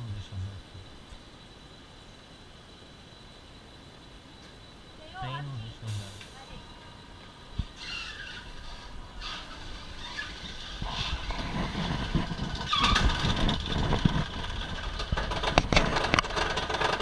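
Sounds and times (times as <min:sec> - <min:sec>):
coaster wheels rumbling on rail: 0:06.2 - 0:17.0.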